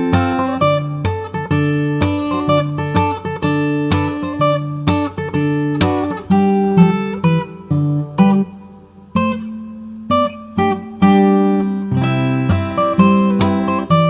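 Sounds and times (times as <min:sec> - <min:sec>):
acoustic guitar: 0:00.0 - 0:14.0.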